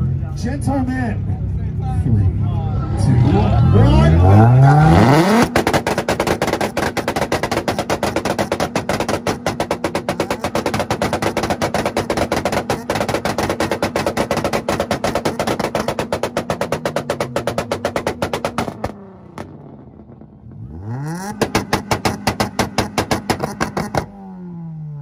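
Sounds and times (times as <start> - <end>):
exhaust bangs and pops: 4.1 - 24.2.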